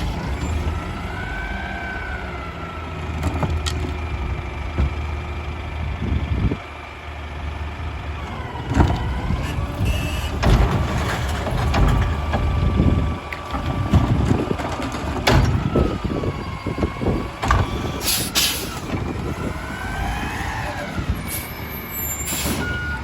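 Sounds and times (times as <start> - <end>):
diesel engine running: 0.0 - 23.0
loud clanks and bangs: 8.6 - 19.2.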